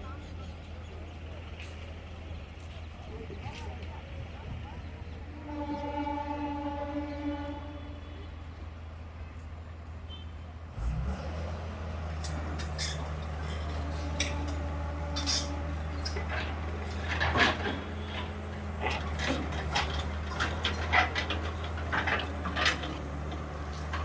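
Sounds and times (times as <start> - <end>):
heavy machine engine droning: 10.7 - 24.0
metal and debris clanking: 12.2 - 24.0.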